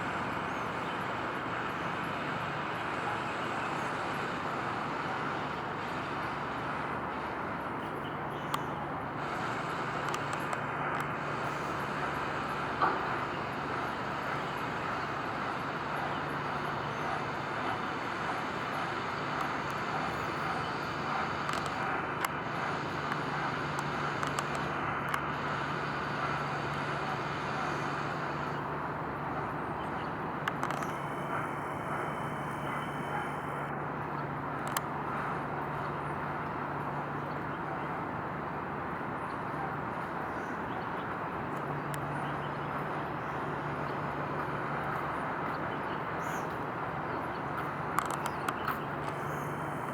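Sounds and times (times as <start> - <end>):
distant traffic: 0.0 - 49.9
faint clicks: 8.5 - 28.6, 30.4 - 33.7, 34.6 - 34.9, 47.3 - 49.9.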